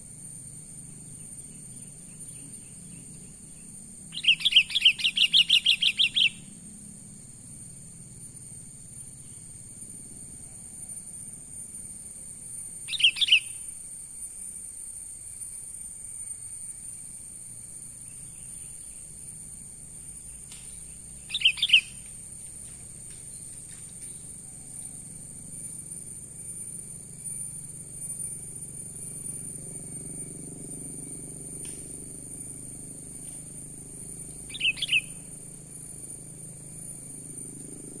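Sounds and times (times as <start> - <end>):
high-pitched insect drone: 0.0 - 38.0
bird chirping calls: 4.2 - 6.4, 12.9 - 13.5, 20.3 - 22.0, 34.4 - 35.2.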